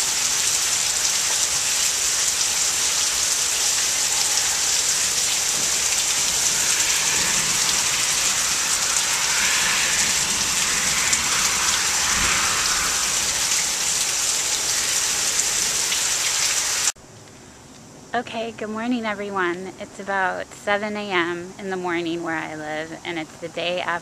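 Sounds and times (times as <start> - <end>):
heavy rain pouring: 0.0 - 17.0
low rumble: 2.5 - 16.7.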